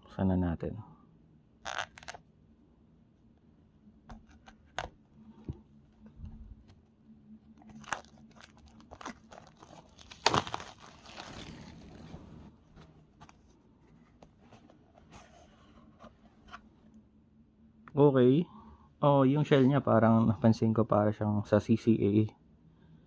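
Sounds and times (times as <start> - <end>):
packaging crinkling: 7.6 - 13.4.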